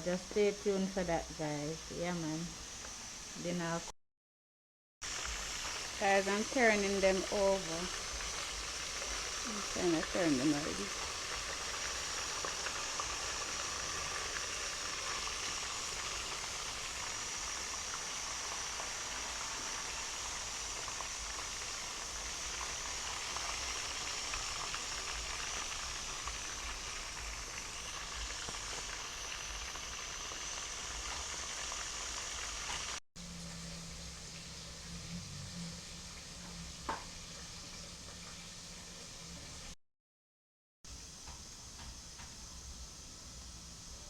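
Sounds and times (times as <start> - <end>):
chicken sizzling in frying: 5.0 - 39.8.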